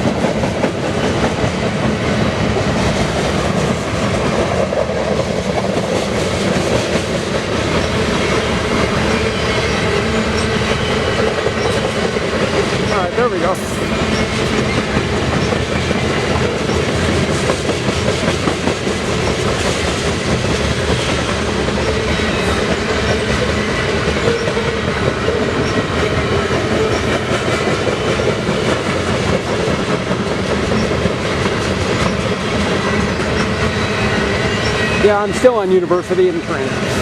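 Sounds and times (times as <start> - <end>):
train wheels on rails: 0.0 - 37.0.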